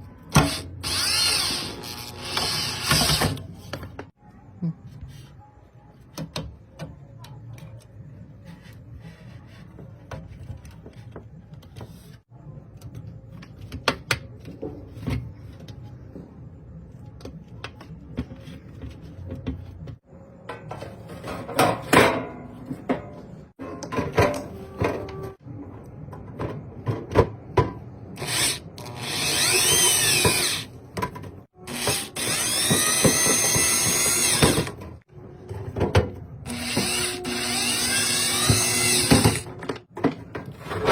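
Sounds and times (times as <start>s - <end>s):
power drill whirring: 0.3s - 3.3s, 28.2s - 30.7s, 31.7s - 34.7s, 36.5s - 39.4s.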